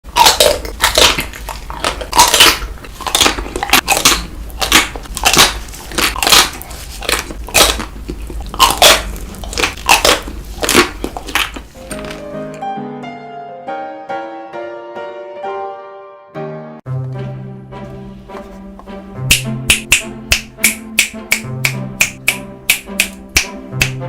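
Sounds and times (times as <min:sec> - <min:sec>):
crunchy chewing of ice cream: 0:00.1 - 0:12.2.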